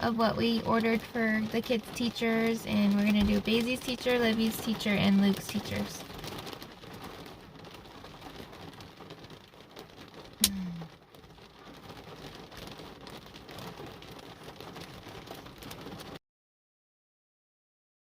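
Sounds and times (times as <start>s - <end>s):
steady rain falling: 0.0s - 16.2s.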